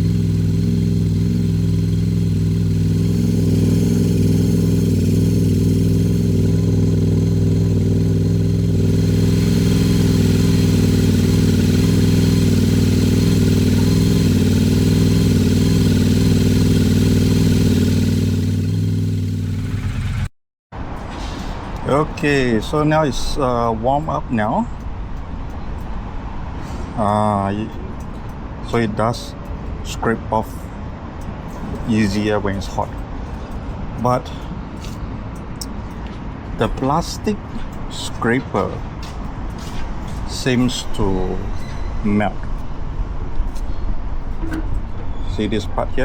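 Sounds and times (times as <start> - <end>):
motorcycle engine idling: 0.0 - 20.3.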